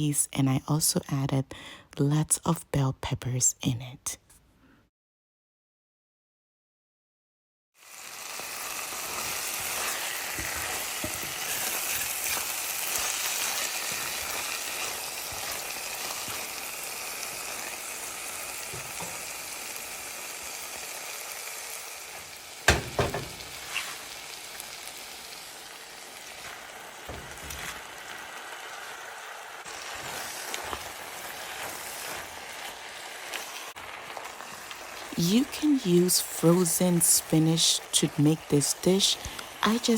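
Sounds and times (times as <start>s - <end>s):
food sizzling in oil: 7.8s - 39.9s
spoon knocking on pot: 22.7s - 23.6s.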